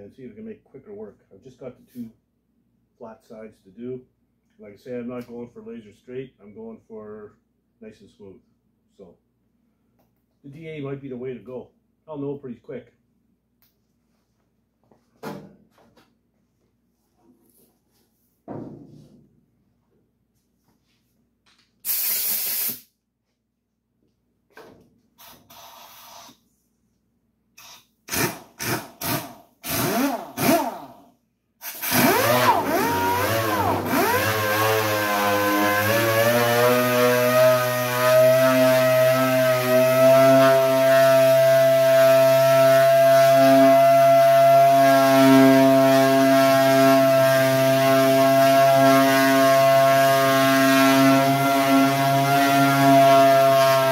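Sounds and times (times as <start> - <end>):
sander whining on sheet metal: 31.6 - 53.9.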